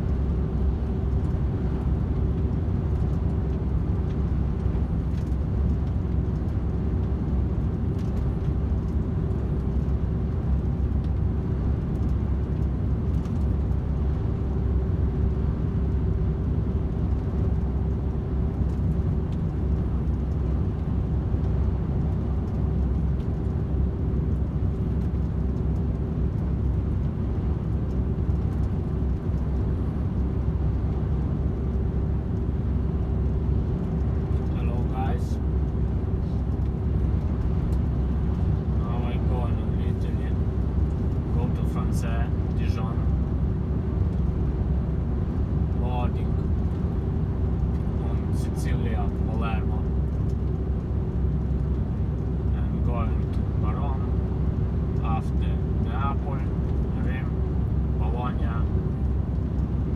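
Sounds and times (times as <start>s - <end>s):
truck engine rumble in cab: 0.0s - 59.9s.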